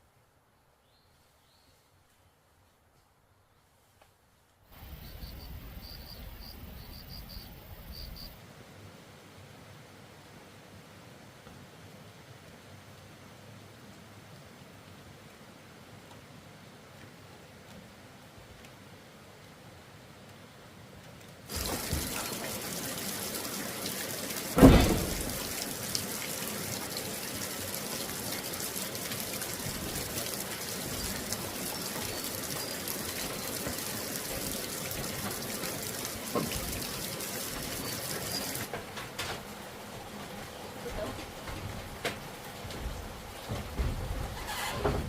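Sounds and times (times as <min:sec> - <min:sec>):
running water: 0:21.5 - 0:45.0
loud thump: 0:24.6 - 0:25.4.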